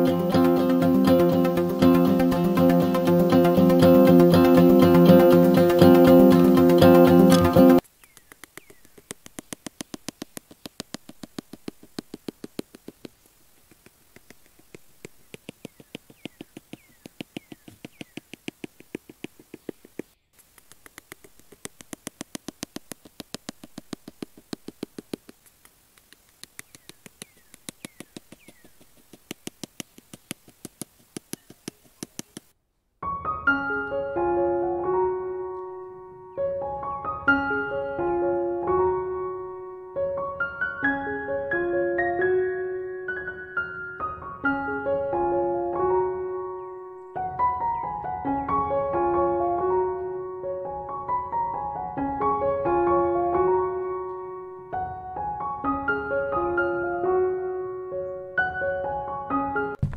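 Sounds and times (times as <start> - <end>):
piano music: 0.0 - 7.8, 33.0 - 59.8
sharp light taps: 7.3 - 32.5.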